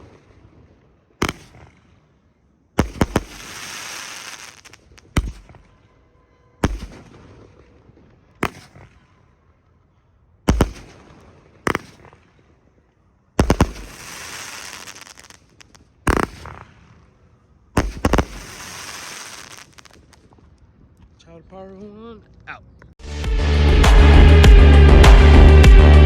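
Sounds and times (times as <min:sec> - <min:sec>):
firework sharp bangs: 0:00.0 - 0:02.0, 0:02.8 - 0:06.0, 0:06.6 - 0:09.4, 0:10.4 - 0:12.6, 0:13.4 - 0:20.4
firework hiss: 0:02.8 - 0:05.6, 0:13.4 - 0:16.8, 0:17.8 - 0:20.2.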